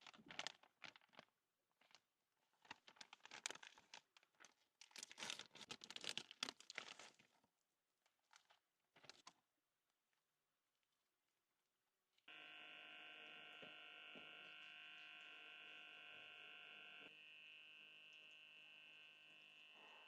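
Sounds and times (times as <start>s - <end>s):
high-pitched electrical hum: 12.3s - 20.0s.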